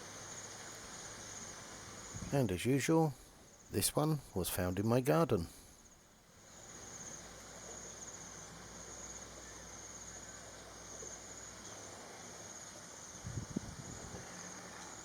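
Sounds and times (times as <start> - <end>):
high-pitched insect trill: 6.4 - 15.0.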